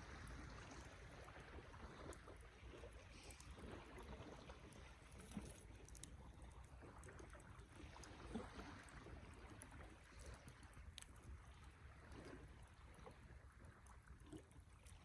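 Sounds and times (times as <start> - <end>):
low rumble of fire: 0.0 - 15.0
wood fire crackling: 4.8 - 12.1.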